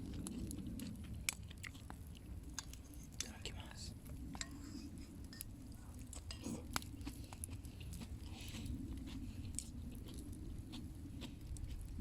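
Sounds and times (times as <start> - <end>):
person chewing meat: 0.0 - 2.9, 5.7 - 12.0.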